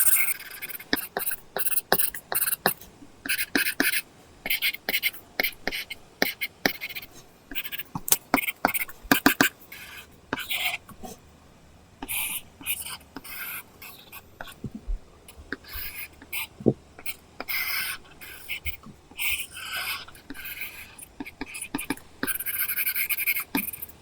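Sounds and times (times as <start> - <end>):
stylus scratching on screen: 0.0 - 0.8.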